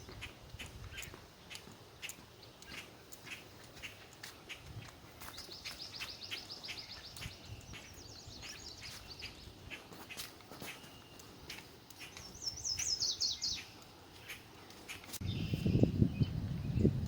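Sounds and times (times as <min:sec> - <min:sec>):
songbird trilling: 0:05.3 - 0:16.8.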